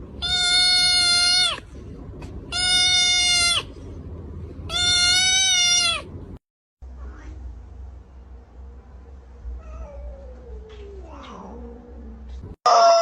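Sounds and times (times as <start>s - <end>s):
steady low rumble: 0.0s - 12.6s
cat yowling: 0.2s - 1.6s, 2.5s - 3.7s, 4.7s - 6.1s, 12.7s - 13.0s.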